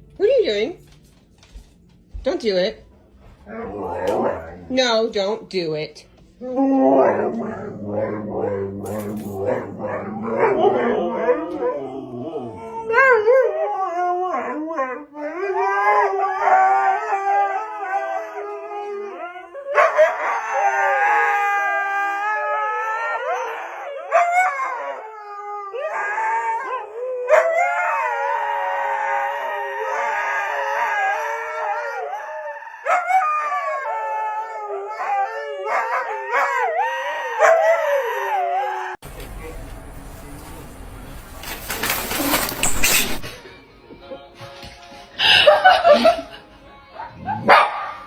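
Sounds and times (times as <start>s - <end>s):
dog howling: 3.5s - 4.7s, 6.4s - 39.0s.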